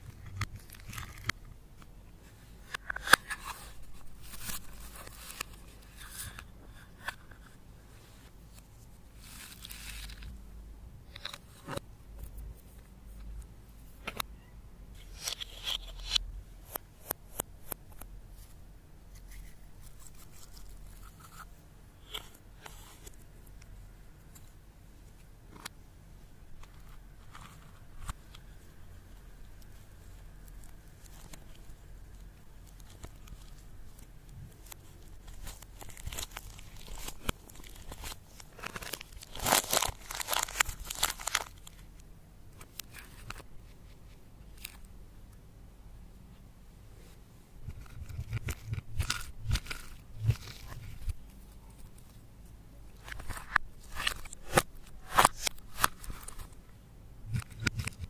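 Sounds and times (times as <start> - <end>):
slime crinkling: 29.6 - 42.0
slime crackling and crunching: 35.2 - 41.8.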